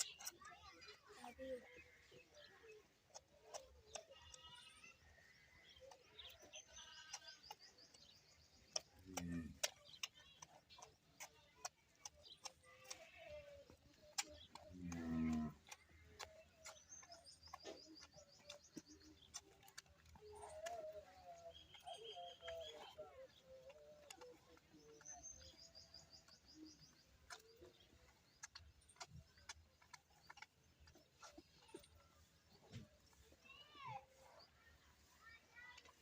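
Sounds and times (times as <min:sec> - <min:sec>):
small birds trilling: 0:00.0 - 0:36.0
sharp clicks: 0:05.6 - 0:32.0.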